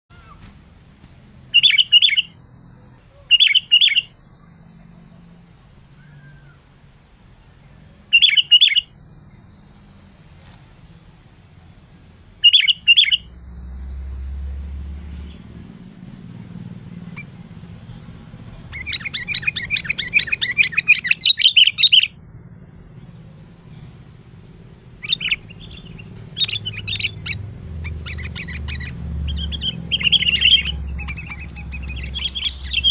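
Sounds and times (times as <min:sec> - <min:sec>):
bulbul calling: 0:01.5 - 0:04.2, 0:08.1 - 0:09.0, 0:12.4 - 0:13.4, 0:17.0 - 0:22.2, 0:25.0 - 0:32.9
bird rapid chattering notes: 0:18.7 - 0:22.1, 0:25.0 - 0:32.9.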